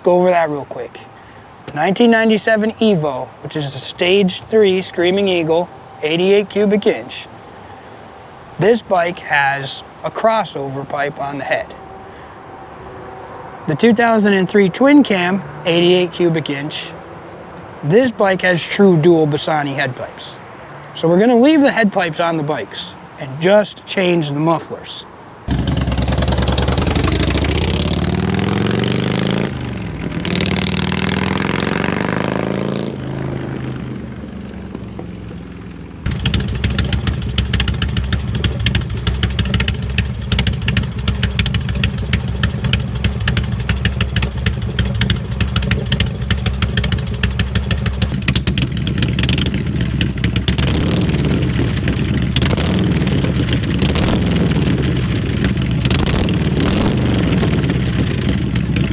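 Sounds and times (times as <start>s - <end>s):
motorcycle engine idling: 25.5s - 28.5s, 34.4s - 58.9s
motorcycle engine revving: 25.5s - 58.9s.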